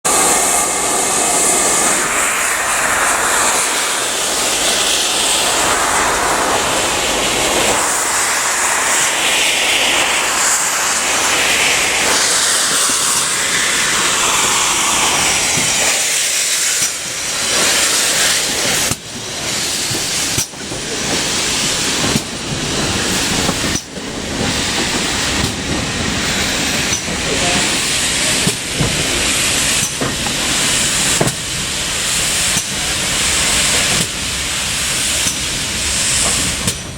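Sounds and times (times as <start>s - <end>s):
steam hissing from locomotive: 0.0s - 36.9s.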